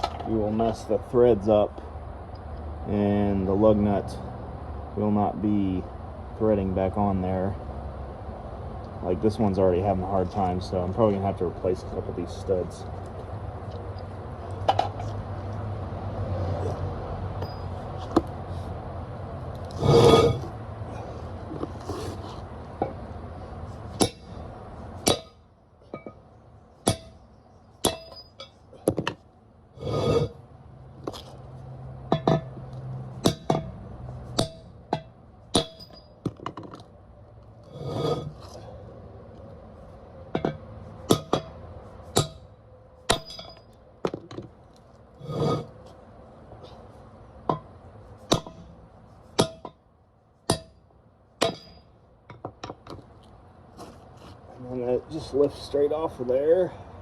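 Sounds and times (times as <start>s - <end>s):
hammer striking steel: 24.0s - 24.3s, 25.0s - 25.4s, 26.8s - 27.2s, 27.8s - 28.6s, 33.2s - 33.8s, 34.4s - 36.1s, 42.2s - 42.5s, 43.1s - 43.6s, 48.3s - 48.7s, 49.4s - 49.8s, 50.5s - 50.8s, 51.4s - 51.9s.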